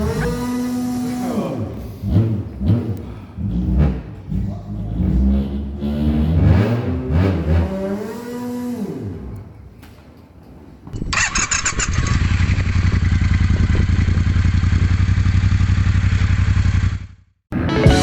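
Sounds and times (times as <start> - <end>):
engine clatter: 10.9 - 17.2
motorcycle engine idling: 11.1 - 17.2.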